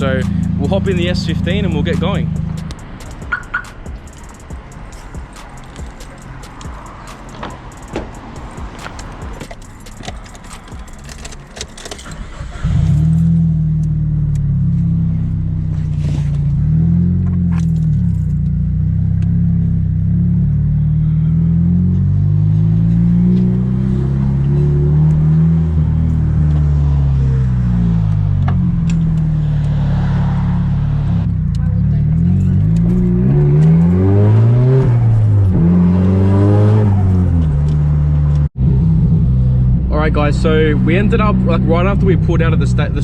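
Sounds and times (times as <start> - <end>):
car engine running at low revs: 0.0 - 43.0
keys clicking and rattling: 3.0 - 12.4.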